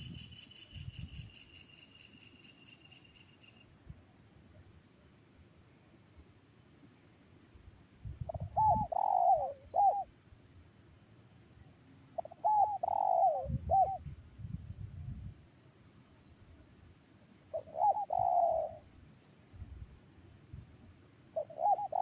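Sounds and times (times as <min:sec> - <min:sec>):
dove cooing: 0:08.3 - 0:10.1, 0:12.2 - 0:14.1, 0:17.5 - 0:18.9, 0:21.3 - 0:22.0.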